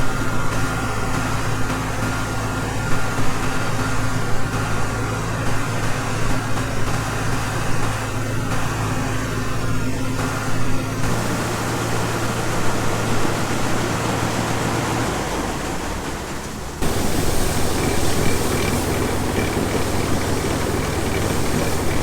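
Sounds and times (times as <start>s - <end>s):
low engine hum: 0.0s - 22.0s
grain pouring rushing noise: 11.1s - 22.0s.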